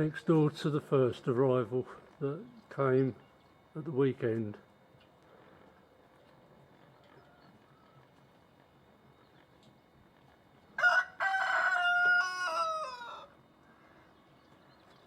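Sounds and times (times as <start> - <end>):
rooster crowing: 6.9 - 8.1, 10.8 - 13.4.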